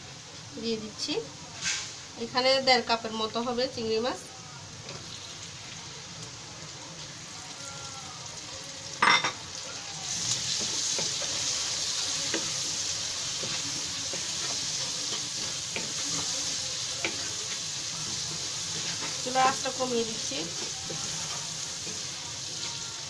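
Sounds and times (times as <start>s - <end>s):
shrimp sizzling in hot oil: 0.0s - 23.0s
spatula scraping a wok: 1.6s - 2.0s, 10.1s - 23.0s.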